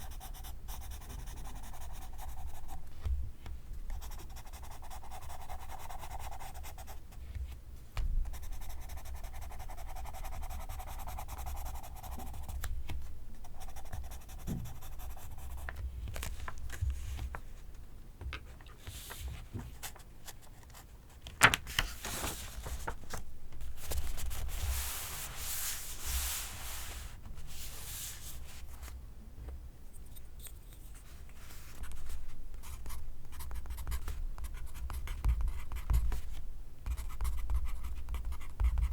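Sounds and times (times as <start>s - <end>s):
pencil scratching on paper: 0.0s - 2.8s, 4.0s - 7.0s, 8.3s - 12.6s, 13.5s - 15.7s.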